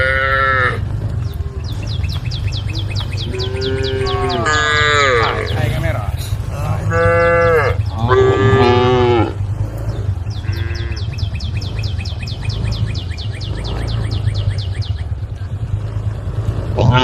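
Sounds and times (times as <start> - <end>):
cow mooing: 0.0 - 2.0, 2.6 - 12.6, 16.3 - 17.0
high chirping: 0.0 - 16.0
low rumble: 0.0 - 17.0.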